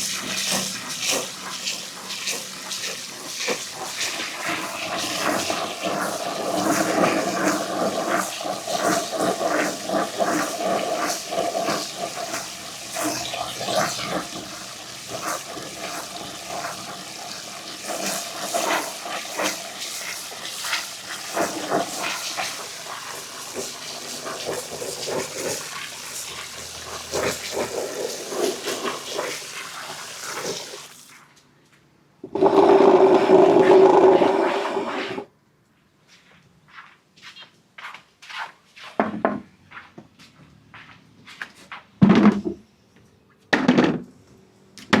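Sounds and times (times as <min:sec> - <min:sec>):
marbles rolling down ramp: 0:32.3 - 0:35.2.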